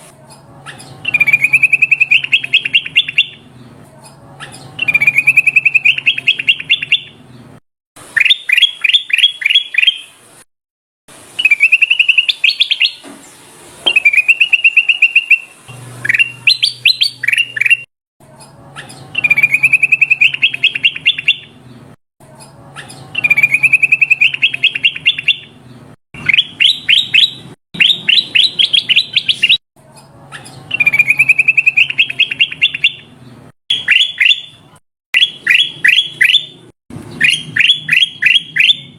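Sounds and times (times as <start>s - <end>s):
bulbul singing warbling trills: 0.7s - 3.4s, 4.4s - 7.2s, 13.8s - 21.6s, 22.8s - 25.6s, 30.4s - 33.1s.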